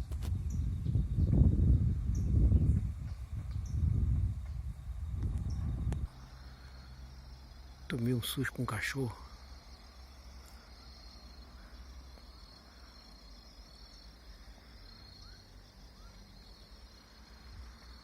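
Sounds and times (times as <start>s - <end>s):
insects trilling: 0.0s - 18.0s
low steady rumble: 0.0s - 18.0s
bird chirps: 5.4s - 18.0s.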